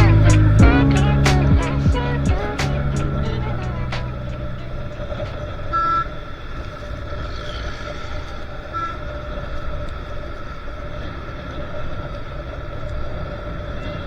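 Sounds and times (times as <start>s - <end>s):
motorbike road rumble: 0.0s - 7.6s.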